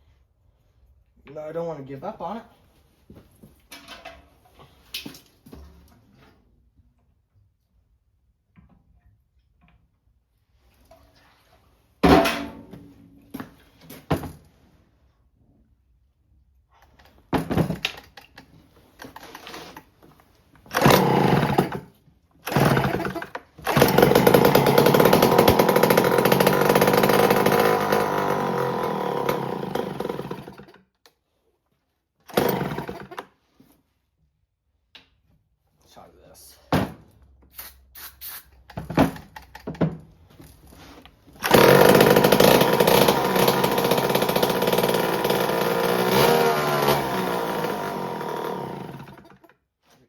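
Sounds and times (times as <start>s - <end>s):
chainsaw popping and running: 20.6s - 30.8s, 32.3s - 33.2s, 41.4s - 49.5s.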